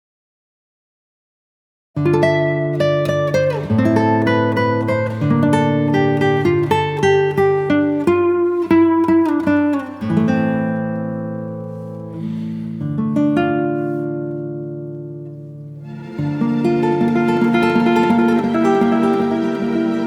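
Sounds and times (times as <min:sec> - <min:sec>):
acoustic guitar picking: 0:02.0 - 0:20.0.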